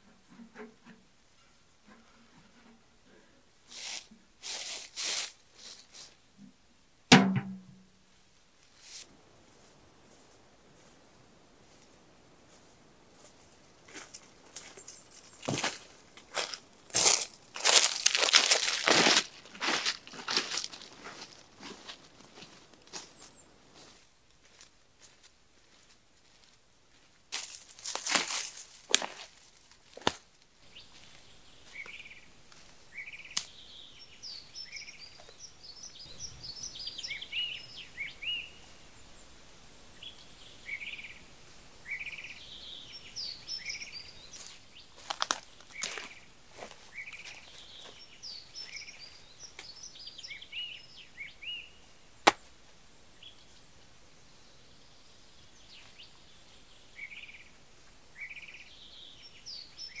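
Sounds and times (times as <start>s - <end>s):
songbirds singing: 9.3s - 24.0s, 27.4s - 60.0s.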